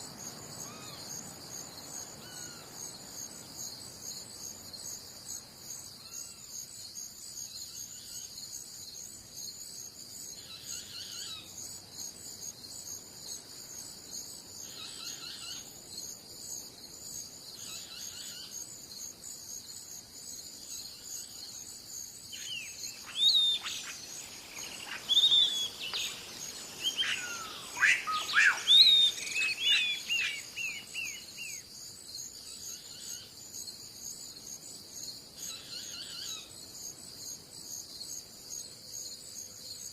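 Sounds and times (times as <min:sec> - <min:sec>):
crickets chirping: 0:00.0 - 0:39.9
songbird whistled calls: 0:22.4 - 0:31.6.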